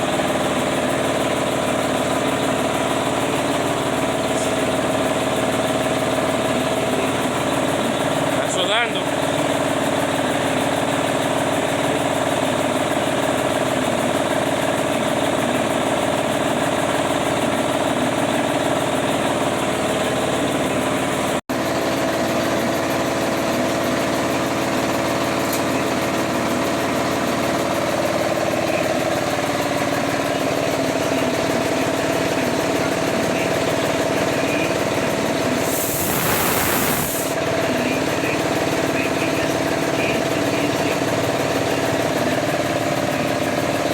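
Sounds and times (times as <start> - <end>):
engine idling: 0.0 - 43.9
short burst of hiss: 35.6 - 37.4.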